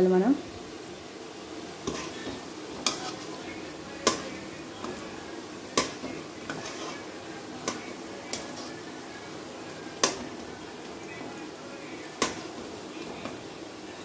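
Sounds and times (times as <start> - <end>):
balls deep-frying in oil: 0.0 - 14.0
metal spoon knocking against pan: 4.0 - 5.0, 5.8 - 6.6, 12.2 - 12.5.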